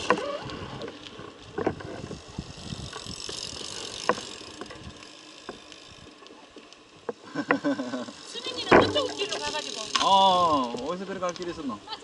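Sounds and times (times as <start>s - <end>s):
bike clicks and rattles: 0.0s - 12.0s
tyres and wind hissing: 0.0s - 12.0s.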